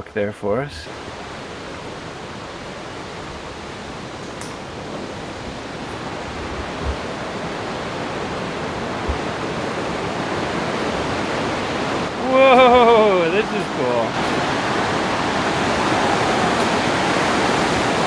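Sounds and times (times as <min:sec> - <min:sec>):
waterfall rushing: 0:00.8 - 0:18.0
soft low thumps: 0:01.8 - 0:12.2.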